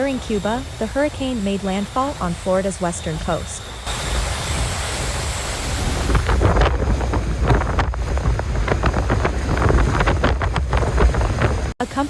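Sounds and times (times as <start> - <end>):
wind buffeting microphone: 0.0 - 11.8
crackles and rattles: 5.8 - 11.8.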